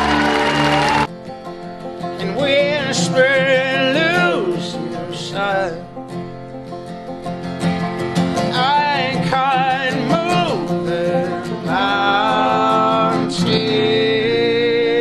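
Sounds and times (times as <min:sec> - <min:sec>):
acoustic strings strummed and picked: 0:00.0 - 0:15.0
person singing: 0:02.2 - 0:05.9, 0:08.5 - 0:15.0.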